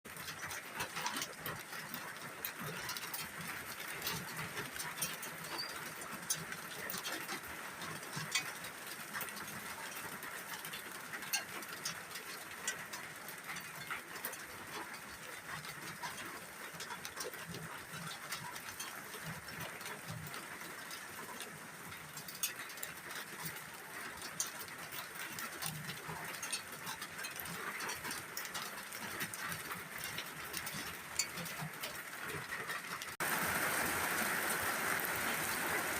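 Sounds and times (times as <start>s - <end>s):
raindrops pattering on surfaces: 0.1s - 35.9s
steady rain falling: 0.1s - 35.9s.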